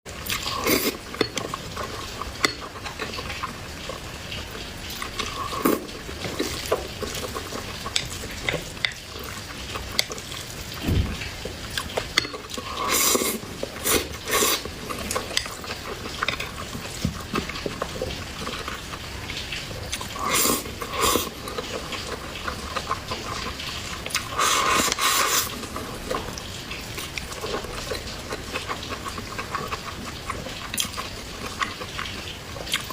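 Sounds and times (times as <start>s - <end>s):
wet chewing and mouth smacking: 0.2s - 32.9s.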